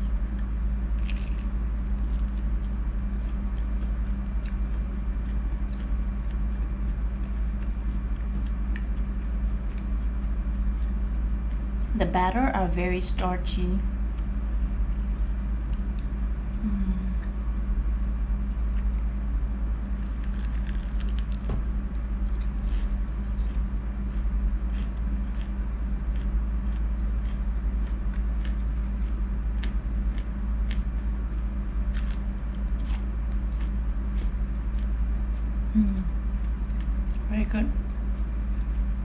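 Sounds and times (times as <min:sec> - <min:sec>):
steady low hum: 0:00.0 - 0:39.0
chewing battered squid: 0:00.1 - 0:11.8, 0:19.8 - 0:37.3
crisp crunches: 0:01.0 - 0:02.5, 0:20.0 - 0:21.5, 0:31.9 - 0:33.0.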